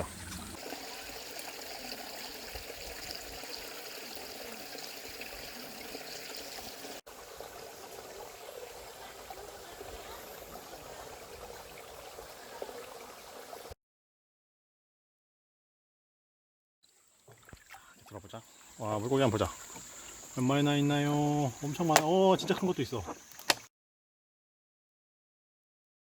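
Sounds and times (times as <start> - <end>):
stream water trickling: 0.0 - 13.8, 16.8 - 23.6.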